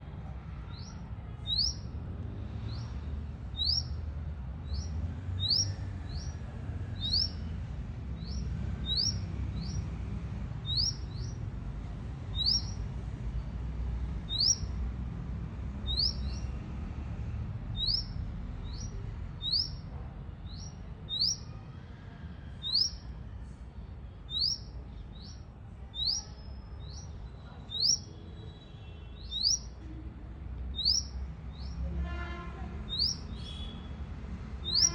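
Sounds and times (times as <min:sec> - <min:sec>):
bird chirping: 0:00.7 - 0:01.9, 0:02.5 - 0:04.0, 0:04.6 - 0:10.0, 0:10.6 - 0:11.4, 0:12.3 - 0:13.0, 0:14.2 - 0:14.8, 0:15.8 - 0:16.6, 0:17.7 - 0:19.9, 0:20.5 - 0:21.5, 0:22.6 - 0:23.1, 0:24.3 - 0:29.9, 0:30.7 - 0:31.9, 0:32.8 - 0:33.9, 0:34.6 - 0:34.9
steady low rumble: 0:01.5 - 0:21.2.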